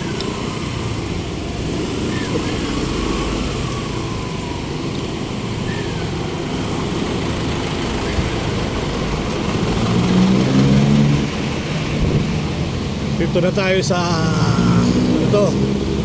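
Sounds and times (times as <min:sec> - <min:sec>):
vehicle engines running: 0:00.0 - 0:16.0.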